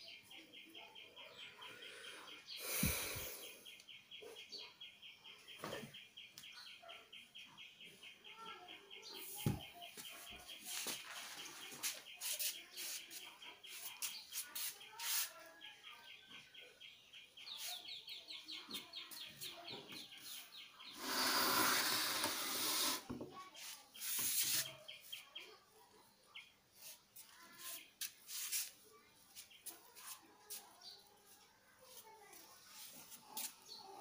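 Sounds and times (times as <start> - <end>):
loud rustling hiss: 20.9 - 23.1.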